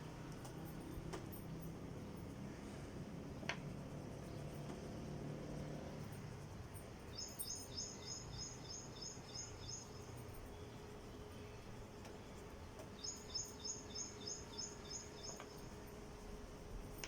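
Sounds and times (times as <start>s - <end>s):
faint low hum: 0.0s - 17.0s
bird chirping: 7.1s - 15.8s.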